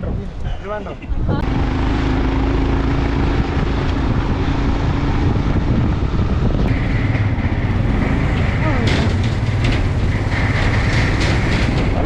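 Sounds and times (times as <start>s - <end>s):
vehicle engine and road noise: 0.0s - 12.0s
wind buffeting microphone: 0.0s - 12.0s.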